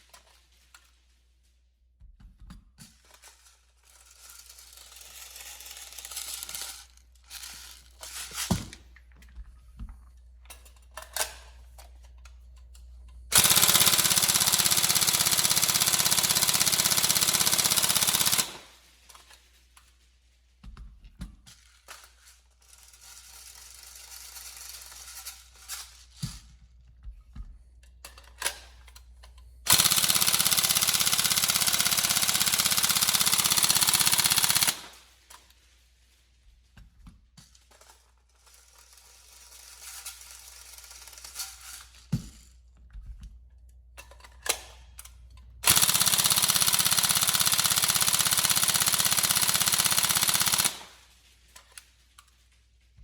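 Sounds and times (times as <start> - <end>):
airsoft gun firing full auto: 13.3 - 18.8, 29.7 - 35.1, 45.6 - 51.1.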